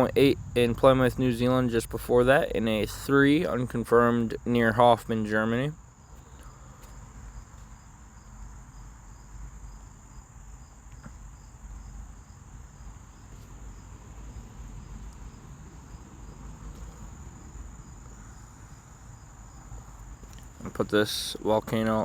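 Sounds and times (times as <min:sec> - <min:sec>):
insects trilling and chirping: 0:00.0 - 0:22.0
low background hum: 0:00.0 - 0:22.0.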